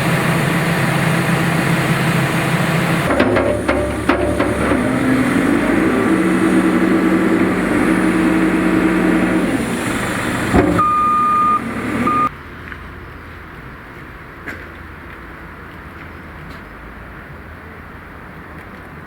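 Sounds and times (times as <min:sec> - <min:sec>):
heavy engine running: 0:00.0 - 0:12.3
knock: 0:03.1 - 0:05.1
high steady beeps: 0:10.8 - 0:12.3.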